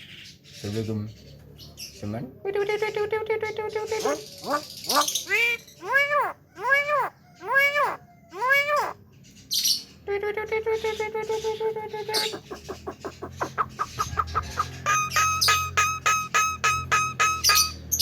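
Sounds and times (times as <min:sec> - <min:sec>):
myna calling: 0:03.7 - 0:09.0, 0:10.4 - 0:18.0.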